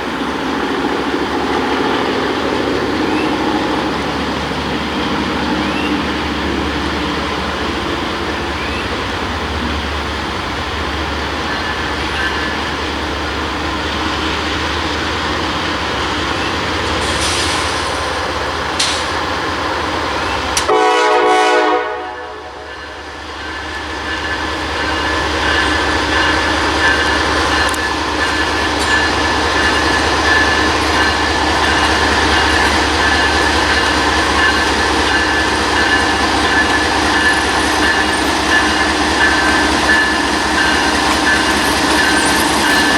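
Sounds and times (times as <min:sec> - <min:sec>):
freight train rumble: 0:00.0 - 0:42.9
locomotive horn blast: 0:20.6 - 0:22.8.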